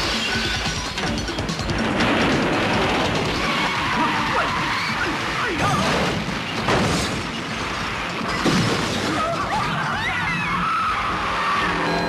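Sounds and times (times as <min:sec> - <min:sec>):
cars crashing and smashing: 0:01.6 - 0:10.6.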